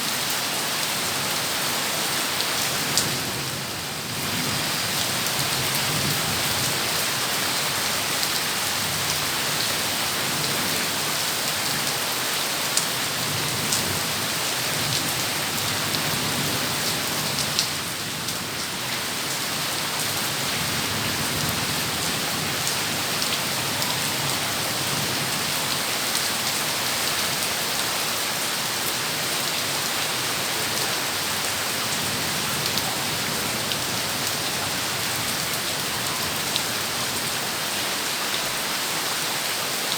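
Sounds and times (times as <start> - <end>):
heavy rain pouring: 0.0 - 39.9
sharp ticks of raindrops: 12.7 - 14.1, 14.8 - 19.4.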